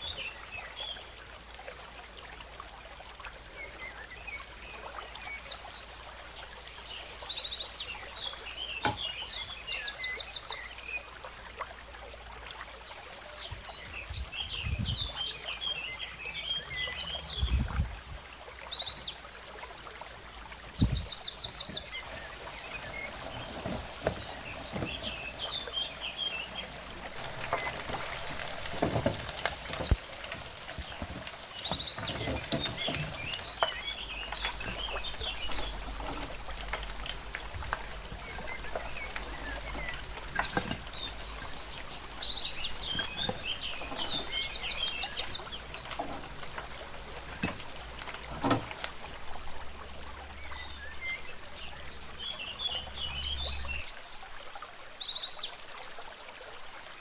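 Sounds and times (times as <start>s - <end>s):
songbirds chirping: 0.0s - 12.0s, 12.7s - 57.0s
background hiss: 20.6s - 53.8s.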